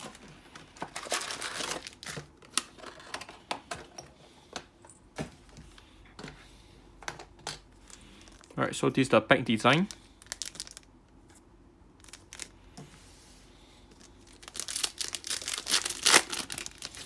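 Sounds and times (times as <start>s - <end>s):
plastic packaging crinkling: 0.0s - 3.4s, 7.9s - 8.6s, 9.7s - 11.0s, 12.0s - 12.6s, 14.0s - 17.0s.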